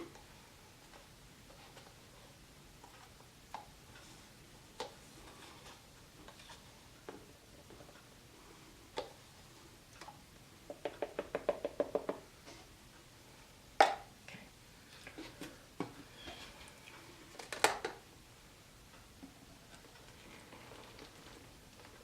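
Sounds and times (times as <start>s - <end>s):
paint cups tapping: 10.7s - 12.2s.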